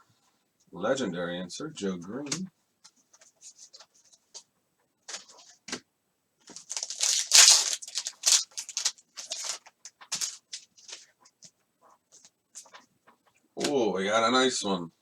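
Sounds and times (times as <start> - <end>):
trading cards scraping rustles: 2.9 - 4.4, 6.5 - 11.4.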